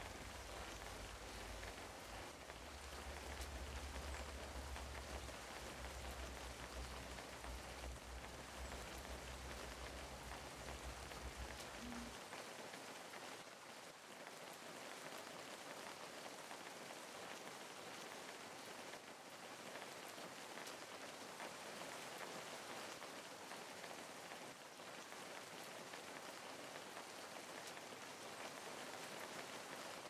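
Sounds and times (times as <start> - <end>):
single raindrops ticking: 0.0 - 12.2
steady rain hiss: 0.0 - 30.0.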